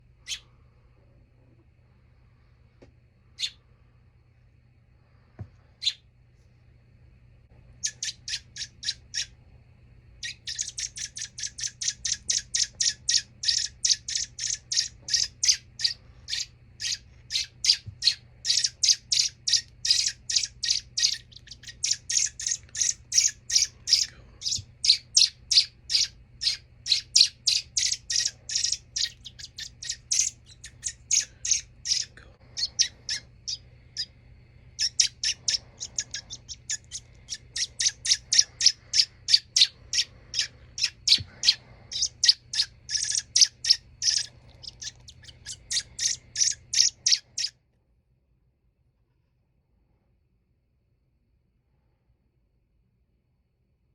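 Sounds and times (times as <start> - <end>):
baby bird chirping: 0.2 - 0.5, 3.4 - 3.7, 5.8 - 6.1, 7.8 - 9.4, 10.2 - 47.6.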